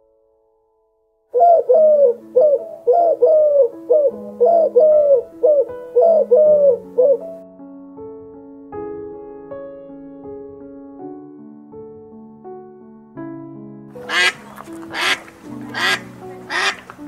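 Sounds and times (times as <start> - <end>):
soft piano music: 0.0 - 17.0
bird hooting: 1.4 - 7.3, 14.0 - 17.0.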